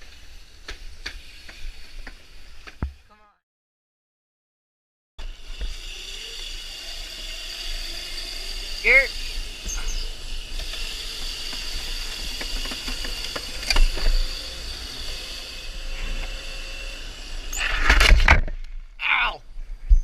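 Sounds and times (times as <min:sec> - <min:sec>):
electric dirt bike motor whine: 0:05.2 - 0:18.3.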